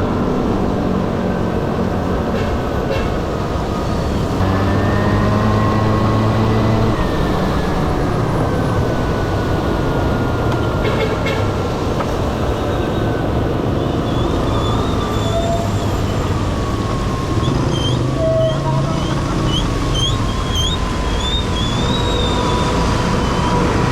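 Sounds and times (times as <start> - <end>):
wind and road noise: 0.0 - 23.9.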